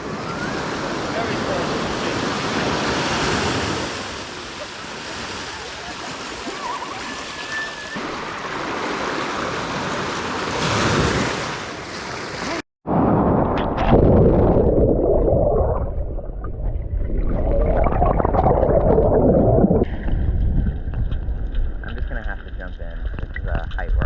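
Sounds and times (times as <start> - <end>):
wind noise: 12.9 - 24.0.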